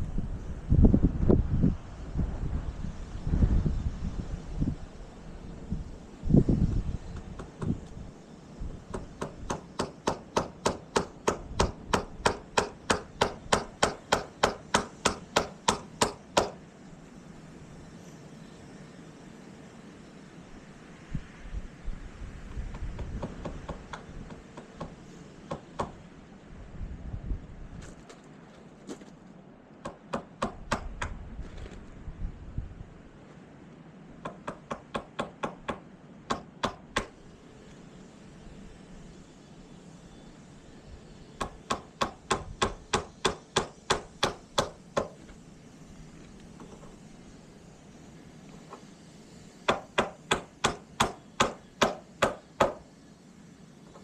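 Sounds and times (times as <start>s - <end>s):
hammer striking: 8.9s - 16.6s, 34.2s - 37.1s, 41.4s - 45.3s, 49.6s - 52.8s.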